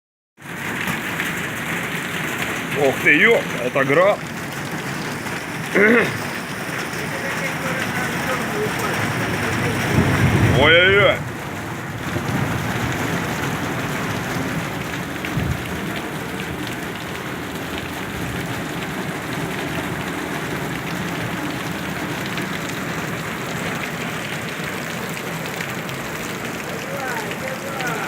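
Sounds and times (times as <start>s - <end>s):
hailstones ticking on surfaces: 0.4s - 28.0s
heavy rain hissing: 0.5s - 28.0s
loud thud: 15.4s - 15.7s.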